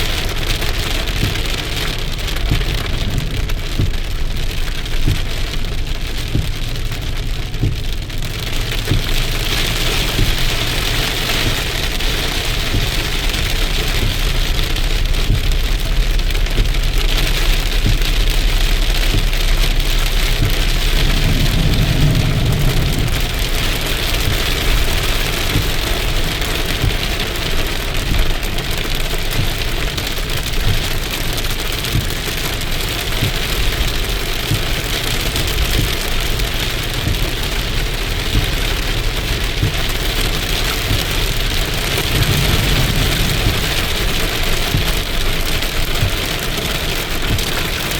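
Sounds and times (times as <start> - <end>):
heavy rain pattering: 0.0 - 47.9
low hum: 1.2 - 28.6, 41.2 - 46.1.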